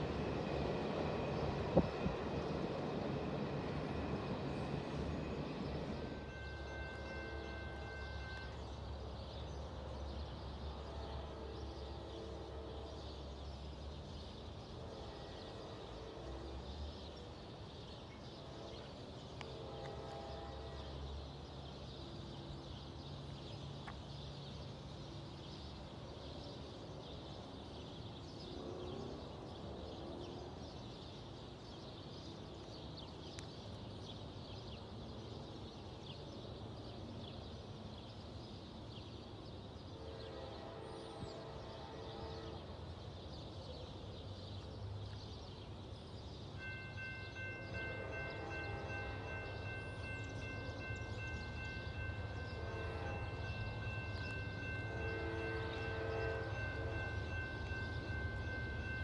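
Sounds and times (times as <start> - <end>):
train rumble: 0.0 - 38.9, 39.5 - 59.0
distant train horn chords: 6.0 - 8.8, 10.7 - 13.4, 14.6 - 16.9, 18.2 - 21.3, 39.8 - 43.1, 46.6 - 59.0.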